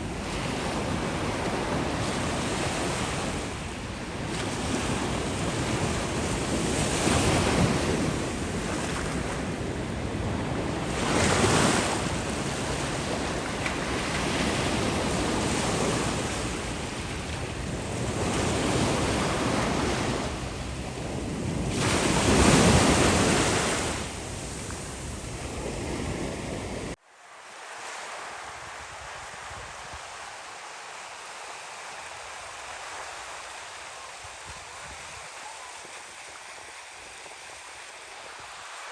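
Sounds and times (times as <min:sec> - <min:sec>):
ocean waves breaking: 0:00.0 - 0:29.1.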